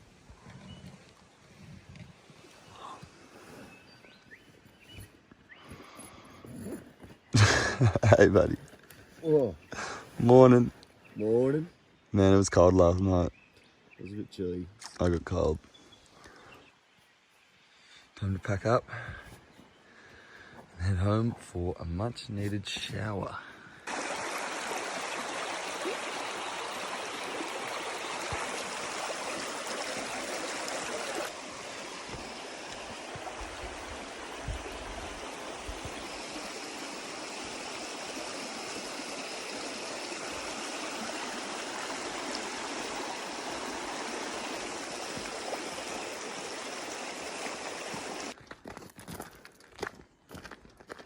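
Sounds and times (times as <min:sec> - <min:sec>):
stream flowing: 0:23.8 - 0:48.4.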